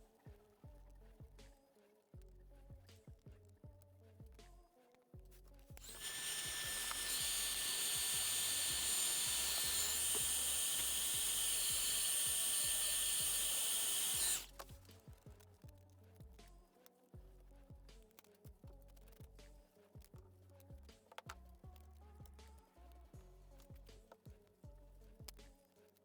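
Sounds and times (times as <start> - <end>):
quiet background music: 0.0 - 26.0
power tool whining: 5.8 - 14.7.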